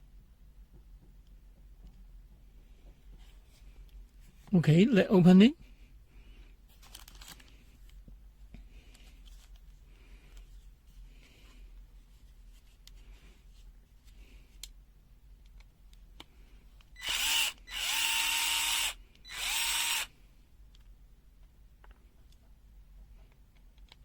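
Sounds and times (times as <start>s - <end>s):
electric screwdriver whining: 17.0s - 20.1s.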